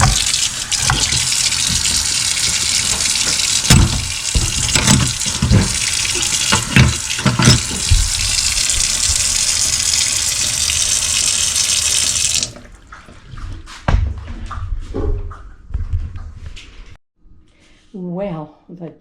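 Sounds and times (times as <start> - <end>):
tap running into sink: 0.0 - 13.1
dishes clinking: 2.7 - 7.9.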